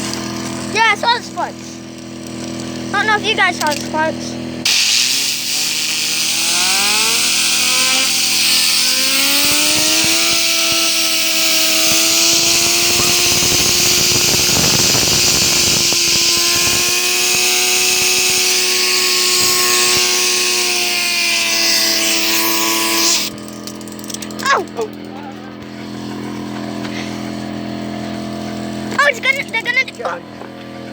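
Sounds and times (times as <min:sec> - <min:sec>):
fidget spinner whining: 0:00.0 - 0:30.3
compressed air hissing: 0:04.6 - 0:23.3.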